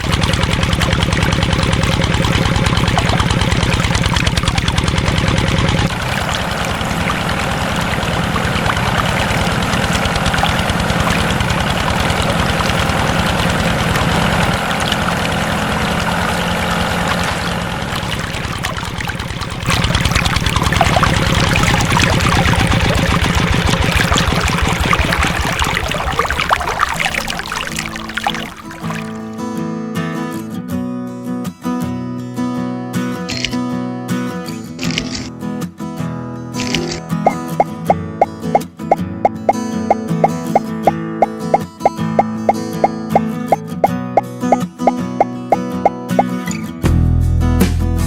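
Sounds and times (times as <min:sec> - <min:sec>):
small engine running: 0:00.0 - 0:29.5.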